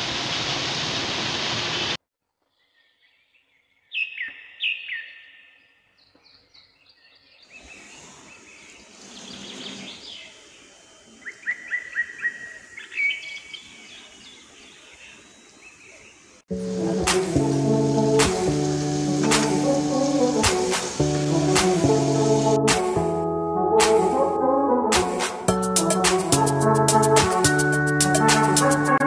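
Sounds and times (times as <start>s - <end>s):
rain hissing: 0.0s - 2.0s, 7.5s - 11.5s, 16.2s - 24.3s, 25.0s - 29.0s
birds chirping and calling: 2.6s - 16.4s.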